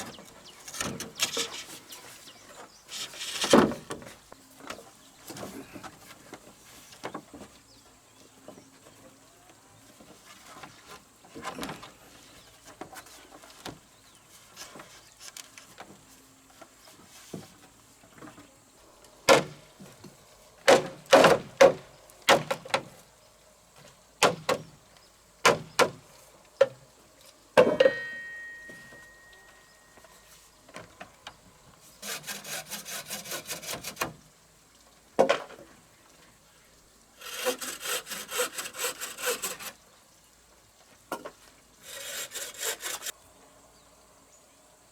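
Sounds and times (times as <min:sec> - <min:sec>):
light knocks and scrapes: 0:00.0 - 0:07.8, 0:09.9 - 0:18.6
short ringing tone: 0:27.8 - 0:30.3.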